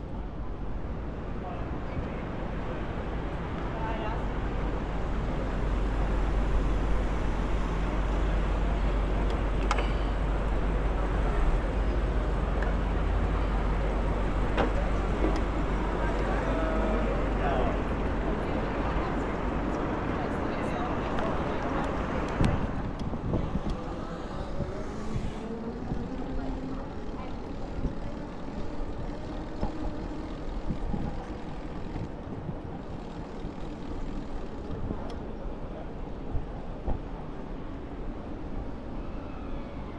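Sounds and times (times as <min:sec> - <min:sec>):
traffic rushing: 0:00.0 - 0:35.6
wind: 0:00.0 - 0:39.9
wind buffeting microphone: 0:21.9 - 0:35.1.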